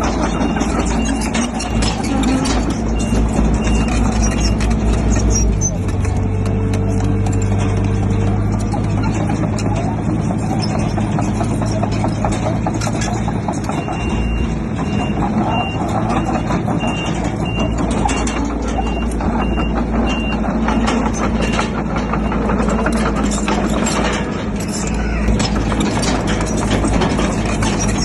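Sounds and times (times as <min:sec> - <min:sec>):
diesel machinery clattering: 0:00.0 - 0:28.0
reversing alarm beeping: 0:00.2 - 0:04.9, 0:13.6 - 0:23.5.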